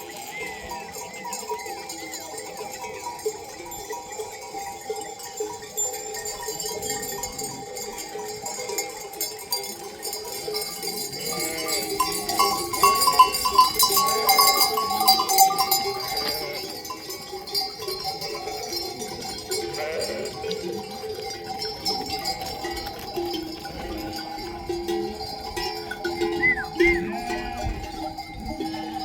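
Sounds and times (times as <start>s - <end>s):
sheep bells clanking: 0.0s - 29.0s
sheep bleating: 11.2s - 16.9s, 19.5s - 20.8s, 26.4s - 28.0s.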